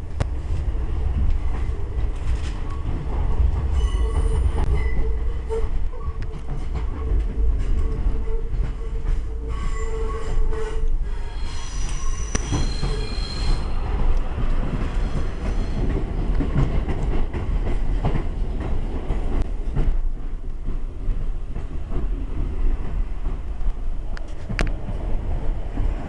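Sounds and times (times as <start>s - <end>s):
rumble of wheels on rail: 0.0s - 26.0s
high wheel squeal: 3.8s - 5.1s, 9.5s - 13.8s
clicks from rail joints: 22.8s - 25.0s.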